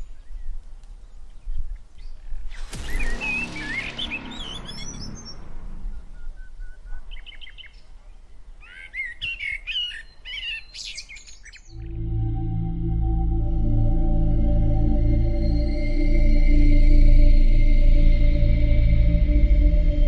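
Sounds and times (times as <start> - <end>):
ambient music tones: 2.5 - 7.0, 11.8 - 20.0
small birds chirping: 6.2 - 11.8.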